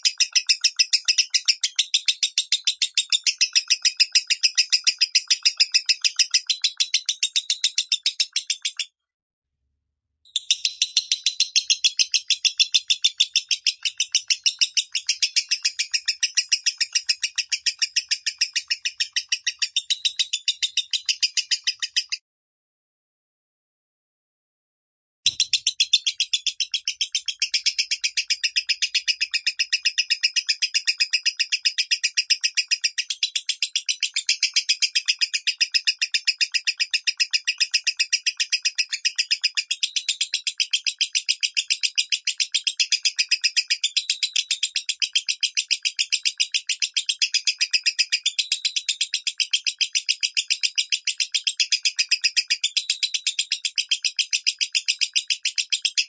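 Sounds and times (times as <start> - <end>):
lovebird shrill chirping: 10.3 - 22.2, 25.3 - 31.8.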